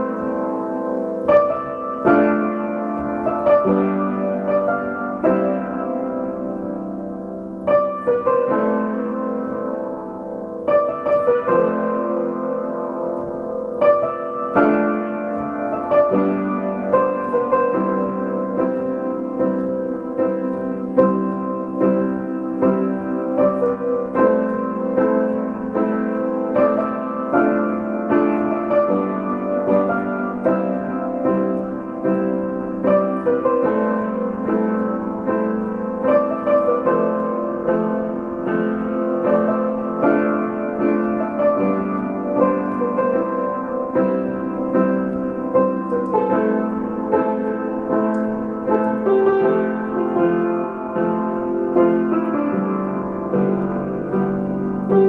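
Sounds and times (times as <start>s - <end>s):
piano piece: 0.0s - 55.0s.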